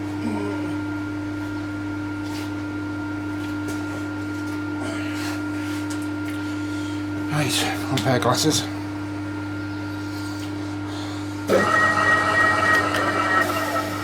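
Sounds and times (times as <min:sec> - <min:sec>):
electric motor humming: 0:11.4 - 0:14.0.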